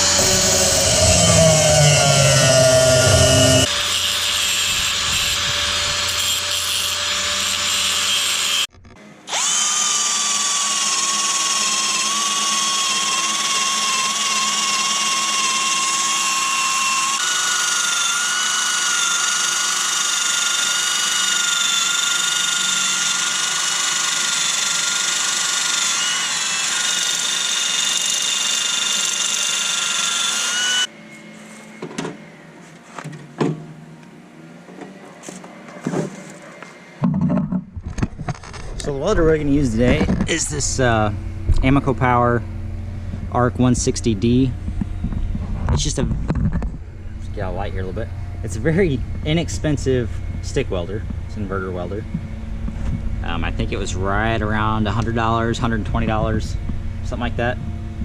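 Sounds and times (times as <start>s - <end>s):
power tool cutting steel: 0.0s - 30.9s.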